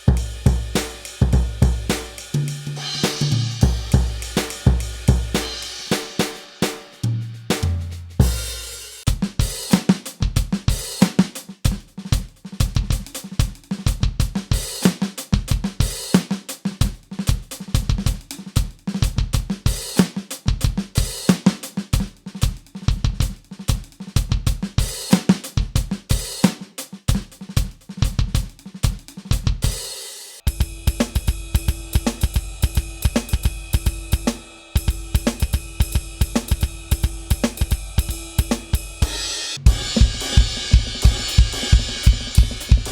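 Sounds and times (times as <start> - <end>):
electronic drum kit groove: 0.0 - 42.9.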